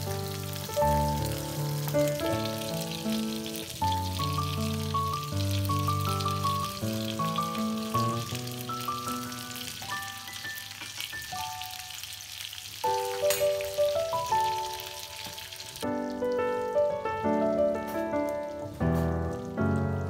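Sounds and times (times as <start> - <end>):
background music: 0.0 - 10.8
fish and butter sizzling in pan: 0.0 - 16.6.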